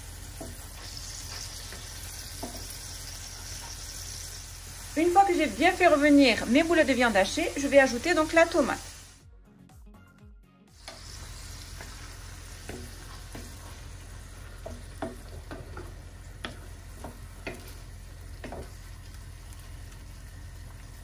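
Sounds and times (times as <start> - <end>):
meatballs sizzling in oil: 0.0 - 9.2, 10.7 - 21.0
wooden spoon knocking on earthenware: 18.4 - 18.8.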